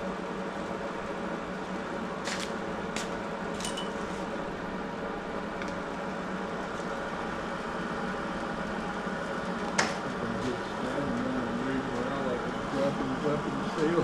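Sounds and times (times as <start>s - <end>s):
steady mechanical running noise: 0.0s - 14.0s.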